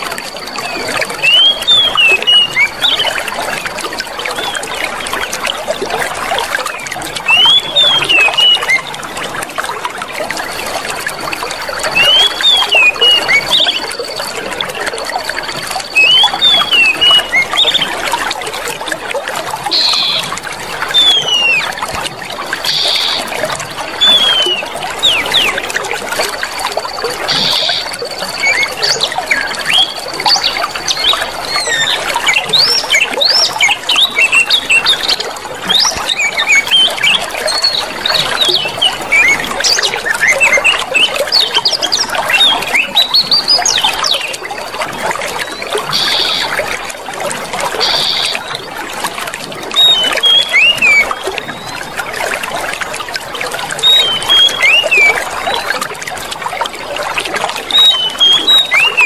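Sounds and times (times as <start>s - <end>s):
small birds chirping: 0.0s - 3.6s, 6.7s - 8.9s, 12.0s - 18.3s, 19.7s - 20.4s, 21.0s - 21.8s, 22.6s - 23.4s, 24.0s - 25.8s, 26.7s - 44.4s, 45.4s - 46.6s, 47.8s - 48.7s, 49.8s - 51.8s, 53.8s - 55.6s, 57.7s - 59.0s
water trickling: 0.0s - 59.0s.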